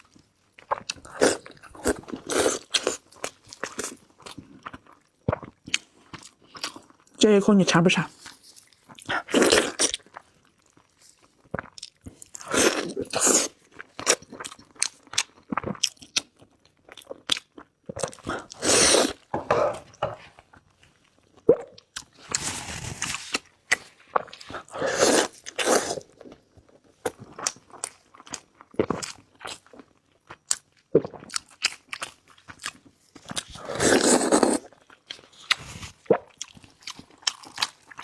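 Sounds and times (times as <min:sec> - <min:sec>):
person chewing meat: 0:08.3 - 0:20.0, 0:27.1 - 0:38.0.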